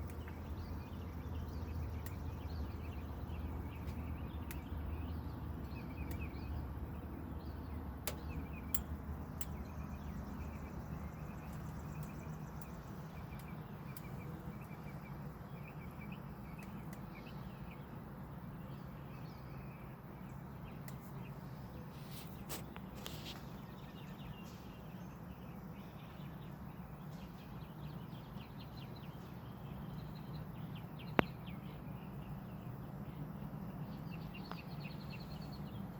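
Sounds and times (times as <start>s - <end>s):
low background rumble: 0.0s - 21.9s
small birds chirping: 0.0s - 35.9s
sharp clicks: 8.0s - 9.7s.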